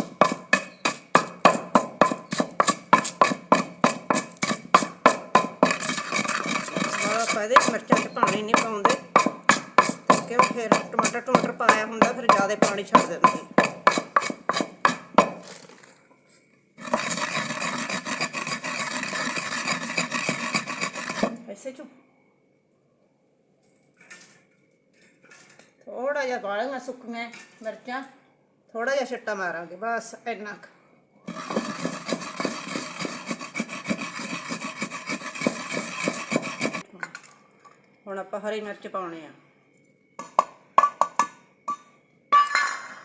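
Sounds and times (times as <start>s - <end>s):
pestle grinding in a mortar: 0.0s - 15.9s, 16.8s - 21.4s, 31.3s - 36.9s
rough scraping: 0.0s - 21.4s, 31.3s - 36.9s.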